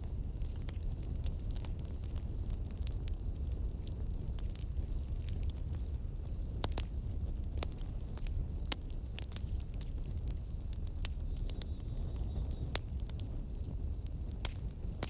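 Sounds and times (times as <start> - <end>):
low rumble of flames: 0.0 - 15.0
wood fire crackling: 0.0 - 15.0.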